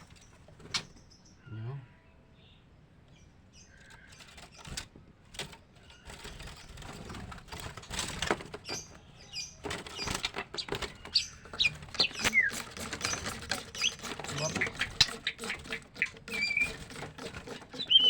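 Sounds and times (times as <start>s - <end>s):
birds scuffling in a cage: 0.0s - 1.3s, 2.9s - 18.0s
bird squeaks and chirps: 8.6s - 18.0s.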